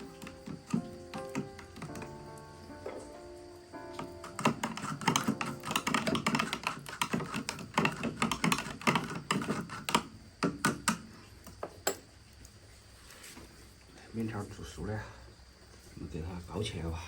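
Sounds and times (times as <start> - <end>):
kitchen utensils tapping and clicking: 0.0 - 2.2, 4.0 - 12.0.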